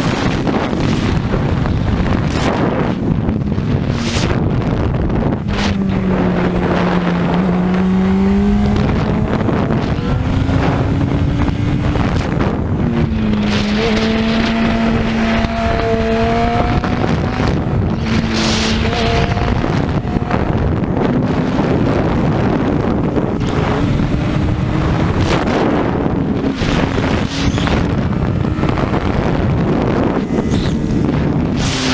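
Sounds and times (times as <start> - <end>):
racing motorcycle engine: 0.0 - 31.9
wind noise on microphone: 0.0 - 31.9.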